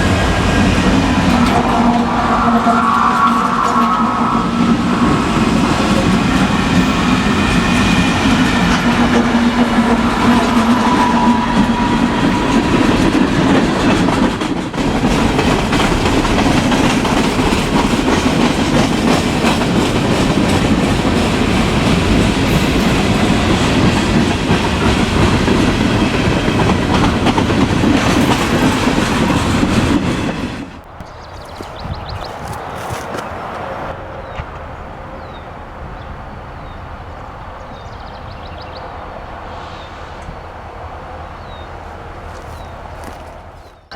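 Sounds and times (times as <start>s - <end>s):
train wheels clattering on rails: 0.0s - 34.7s.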